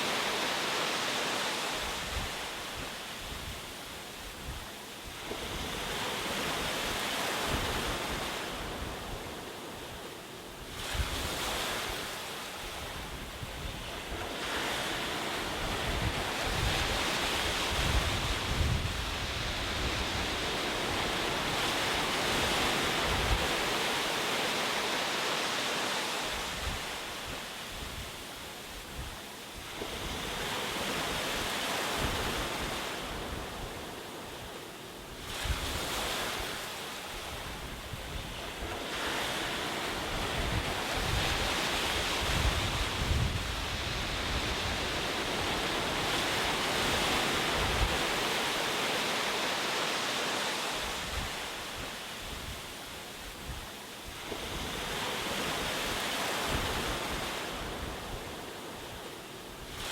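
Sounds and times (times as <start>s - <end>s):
ocean waves breaking: 0.0s - 4.1s, 5.1s - 28.6s, 29.6s - 59.9s
wind on microphone: 1.4s - 24.9s, 26.0s - 49.2s, 50.2s - 59.9s.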